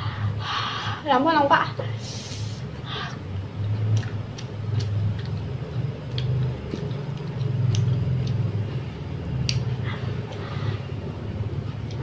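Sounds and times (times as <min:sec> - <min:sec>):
person chewing: 0:03.0 - 0:10.6
wet mouth clicks: 0:06.0 - 0:08.5.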